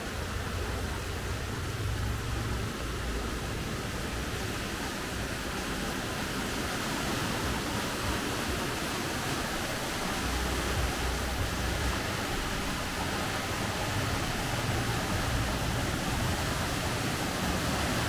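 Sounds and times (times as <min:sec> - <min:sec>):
steady rain hissing: 0:00.0 - 0:18.0
low rumble: 0:00.1 - 0:05.3, 0:10.1 - 0:18.0.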